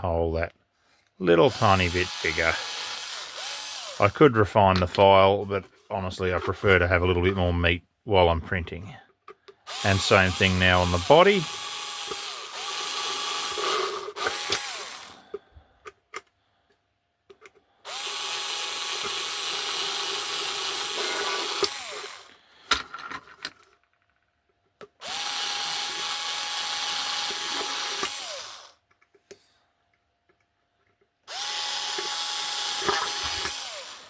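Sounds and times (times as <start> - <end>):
small electric drill running: 1.5 - 4.2, 9.7 - 15.4, 17.8 - 22.5, 25.0 - 28.8, 31.3 - 34.0.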